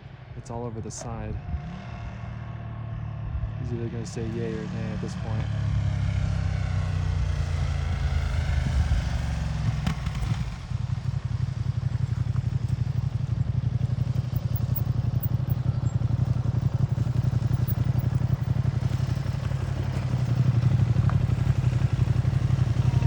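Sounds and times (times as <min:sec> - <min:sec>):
motorcycle engine idling: 0:04.2 - 0:23.0.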